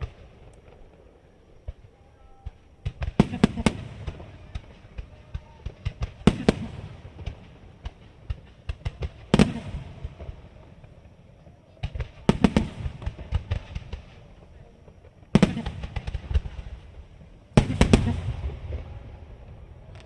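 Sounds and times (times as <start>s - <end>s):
firework shells bursting: 0.0s - 20.0s.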